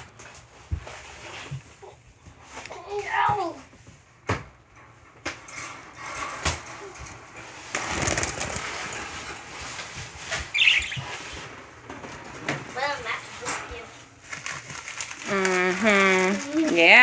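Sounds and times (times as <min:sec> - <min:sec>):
bird wings flapping: 0:07.6 - 0:13.3, 0:14.2 - 0:16.8
bird chirping: 0:10.3 - 0:11.5.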